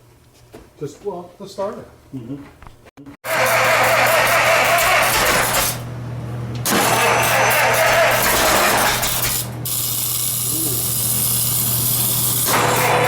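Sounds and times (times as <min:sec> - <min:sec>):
engine cranking with starter: 0:03.3 - 0:05.9, 0:06.6 - 0:10.1, 0:10.8 - 0:13.0.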